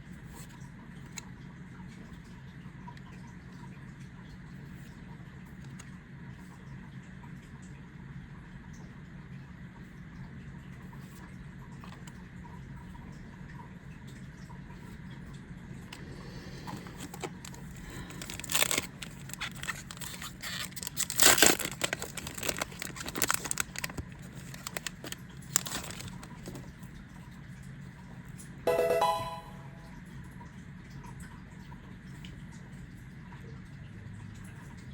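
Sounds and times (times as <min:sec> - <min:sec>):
foil wrappers tearing and crinkling: 0:17.0 - 0:26.6.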